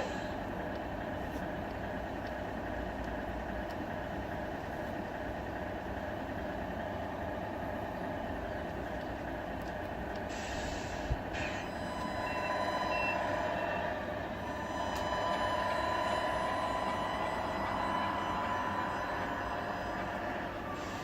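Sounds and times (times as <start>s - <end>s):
truck engine drone: 0.0s - 21.0s
short reversing beeps: 11.4s - 21.0s.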